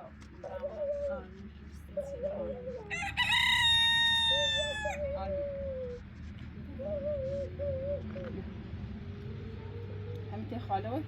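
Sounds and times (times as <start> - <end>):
rooster crowing: 2.9 - 5.0.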